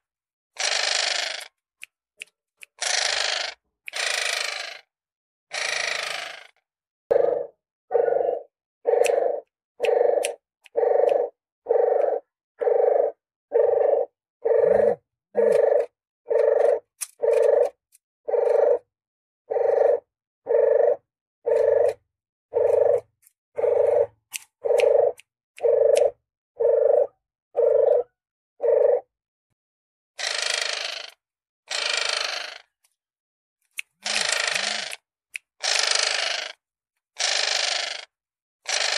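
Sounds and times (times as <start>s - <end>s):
dove cooing: 7.1s - 18.9s, 19.5s - 29.1s.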